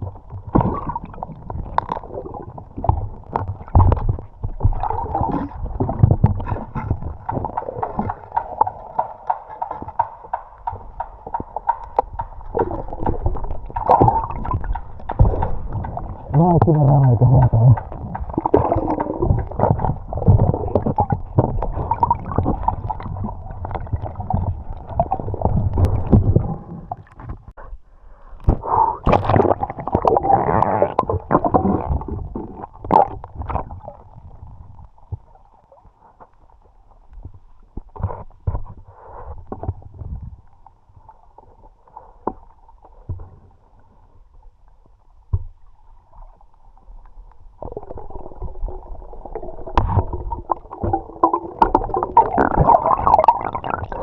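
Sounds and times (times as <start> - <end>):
muffled underwater gurgling: 0.0 - 9.0, 11.5 - 27.2, 28.4 - 35.4, 47.6 - 54.0.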